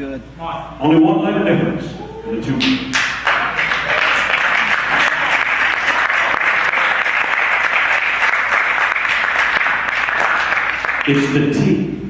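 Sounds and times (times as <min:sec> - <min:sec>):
congregation applauding: 0:02.5 - 0:11.6.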